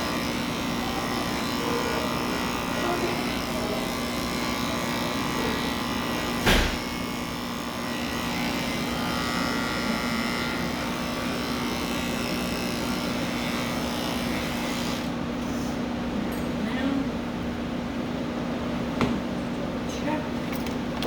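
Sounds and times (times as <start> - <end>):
electric clippers buzzing: 0.0 - 15.4
sharp knock: 6.4 - 6.8.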